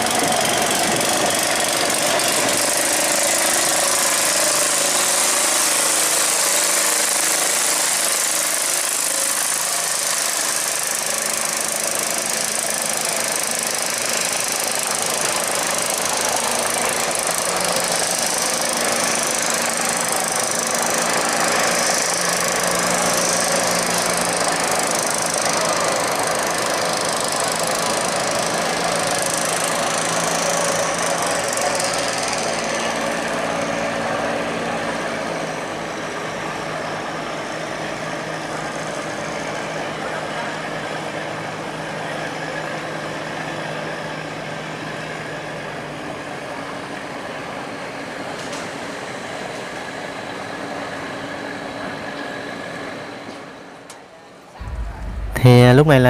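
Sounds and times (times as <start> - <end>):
heavy engine knocking: 54.6 - 56.0.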